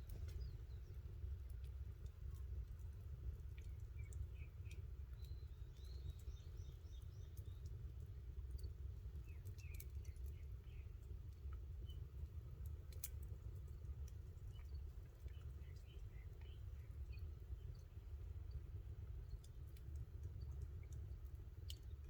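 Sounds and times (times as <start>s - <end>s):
small birds chirping: 0.0s - 2.8s, 3.4s - 12.1s, 14.0s - 18.6s
faint low rumble: 0.0s - 22.0s.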